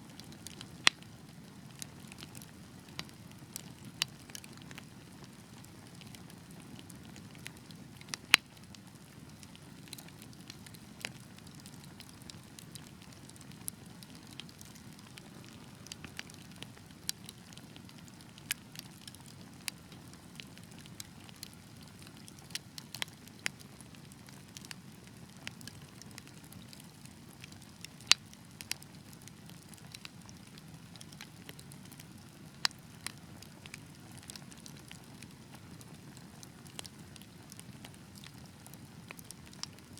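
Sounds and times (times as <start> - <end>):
wood fire crackling: 0.1 - 39.9.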